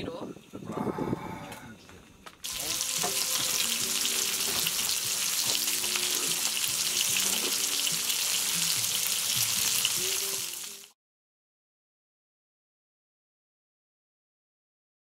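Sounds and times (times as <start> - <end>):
food sizzling in a pan: 2.4 - 11.0.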